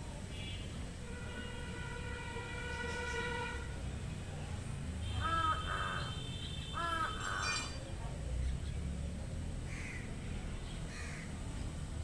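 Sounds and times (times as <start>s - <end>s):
low steady outdoor rumble: 0.0s - 12.0s
crow cawing: 5.2s - 6.1s, 6.8s - 7.6s.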